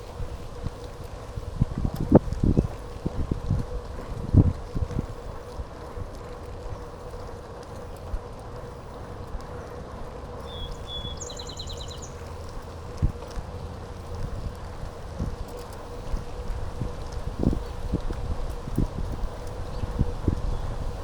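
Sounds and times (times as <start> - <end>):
wind rumbling on microphone: 0.0 - 21.0
bird calling with trill: 10.4 - 12.3.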